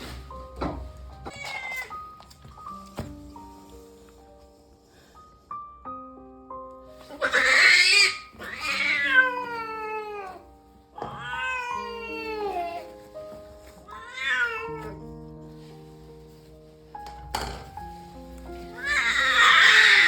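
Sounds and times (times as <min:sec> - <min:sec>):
cat yowling: 0:01.3 - 0:02.0, 0:07.1 - 0:10.4, 0:11.0 - 0:12.8, 0:13.9 - 0:15.0, 0:18.8 - 0:20.0.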